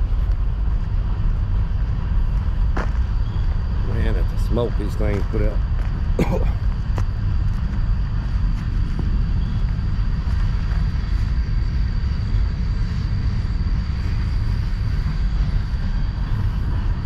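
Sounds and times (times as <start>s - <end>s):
faint high whine: 0.0s - 17.0s
wind buffeting microphone: 0.0s - 17.0s.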